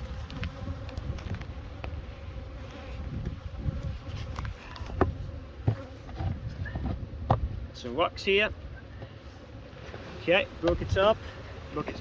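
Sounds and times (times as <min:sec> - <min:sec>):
wind on microphone: 0:00.0 - 0:07.8
bees buzzing: 0:00.0 - 0:12.0.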